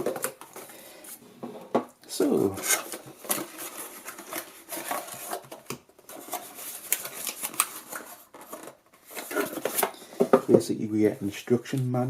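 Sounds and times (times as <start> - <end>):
cardboard box and paper rustling: 2.4 - 10.0.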